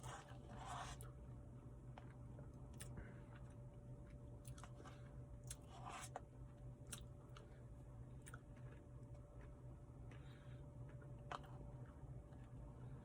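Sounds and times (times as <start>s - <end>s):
low steady hum: 0.0s - 13.0s
person chewing: 2.0s - 6.2s, 6.8s - 12.5s.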